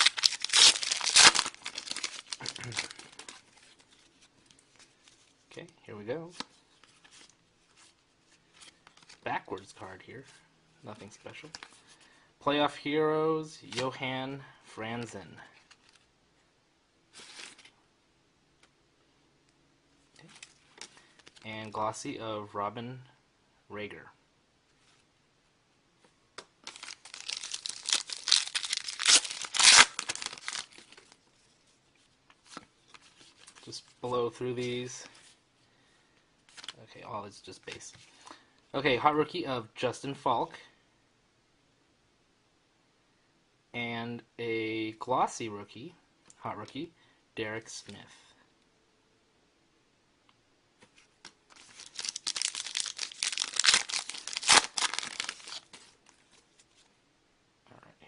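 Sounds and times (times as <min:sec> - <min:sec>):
wrapper crinkling and ripping: 0:00.0 - 0:04.1, 0:26.6 - 0:31.2, 0:51.5 - 0:56.9.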